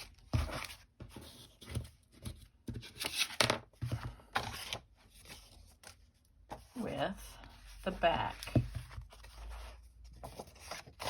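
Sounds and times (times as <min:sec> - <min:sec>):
paper rustling and scraping: 0:00.0 - 0:06.9, 0:07.5 - 0:11.0.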